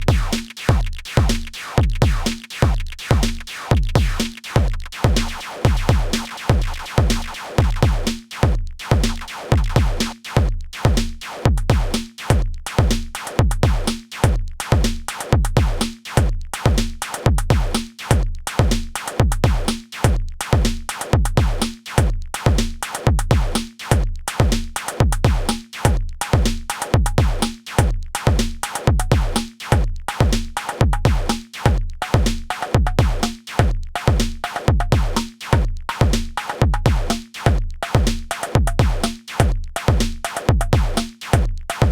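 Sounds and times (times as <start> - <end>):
electronic drum beat: 0.0 - 41.9
synthesized percussion: 2.0 - 8.2.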